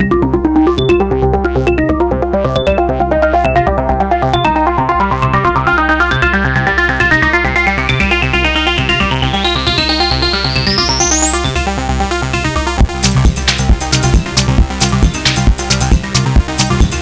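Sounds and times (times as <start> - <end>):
sequenced electronic synth pattern: 0.0 - 17.0
steady synth bass: 0.0 - 17.0
tone rising in pitch: 7.3 - 13.2.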